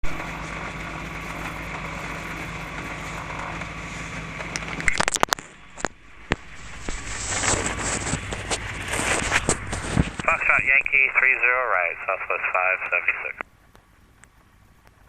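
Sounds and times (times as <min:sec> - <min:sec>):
radio hiss and hum: 0:00.0 - 0:13.5
sharp clicks and crackles: 0:04.4 - 0:11.2.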